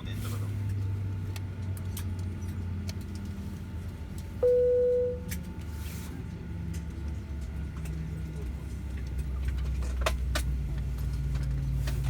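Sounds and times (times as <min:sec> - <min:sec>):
clicks and jingles of passengers: 0:00.0 - 0:12.0
aircraft cabin hum: 0:03.9 - 0:05.6
cabin chime tone: 0:04.4 - 0:05.2.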